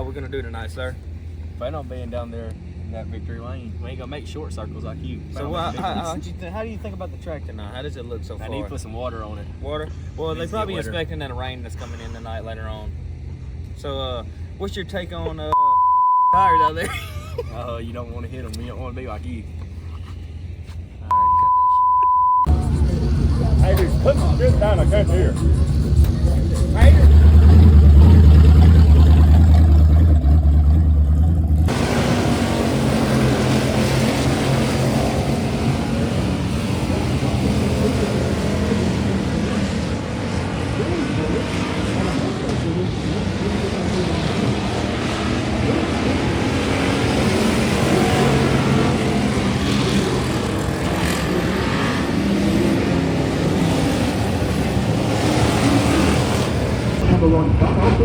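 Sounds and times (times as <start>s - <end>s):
race car engines rumbling: 0.0s - 58.0s.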